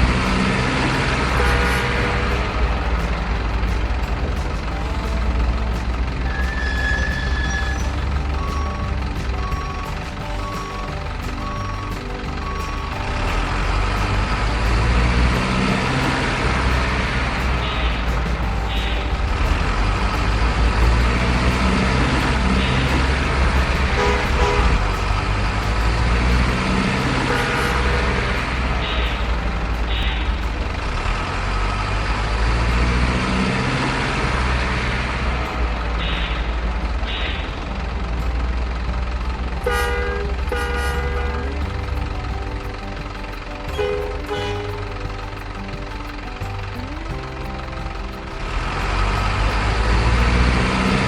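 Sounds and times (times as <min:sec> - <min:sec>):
diesel truck engine rumble: 0:00.0 - 0:51.0
truck horn: 0:00.1 - 0:02.7, 0:23.5 - 0:25.0, 0:26.2 - 0:28.2, 0:39.6 - 0:41.6, 0:43.8 - 0:44.7.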